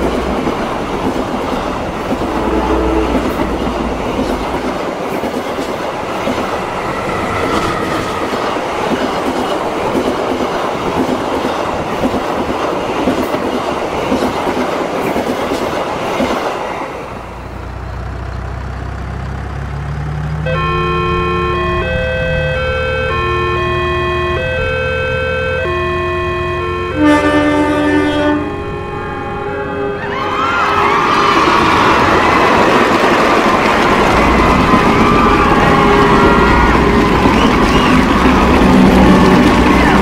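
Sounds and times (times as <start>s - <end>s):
train rumbling past: 0.0s - 25.0s, 26.2s - 40.0s
low engine drone: 1.8s - 4.8s.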